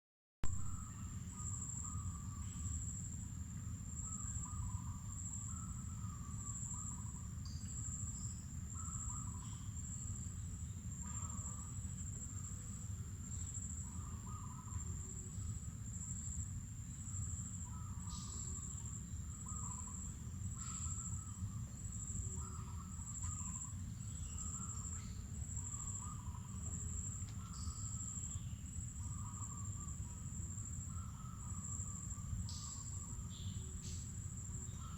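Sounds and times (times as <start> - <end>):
insects trilling: 0.5 - 34.9
lower chirping calls: 3.9 - 34.9
bird chirps: 30.9 - 34.9.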